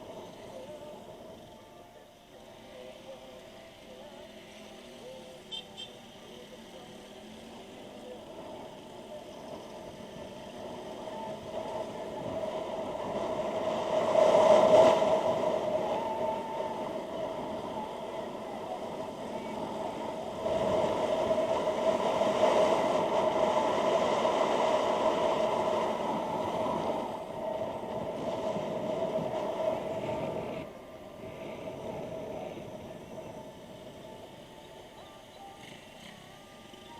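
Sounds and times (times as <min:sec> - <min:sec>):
rushing wind: 0:00.0 - 0:01.8, 0:05.8 - 0:36.9
motorcycle engine hum: 0:00.0 - 0:36.9.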